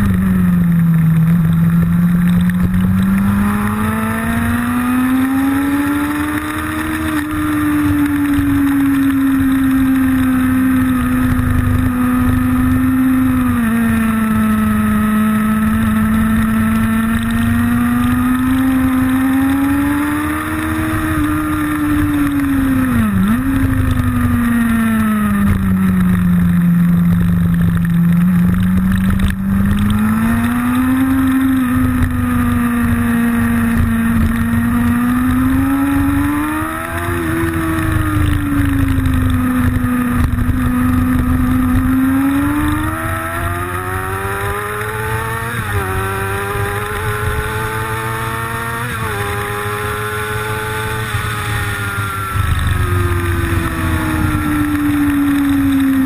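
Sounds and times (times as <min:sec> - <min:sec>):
motorcycle engine at speed: 0:00.0 - 0:56.0.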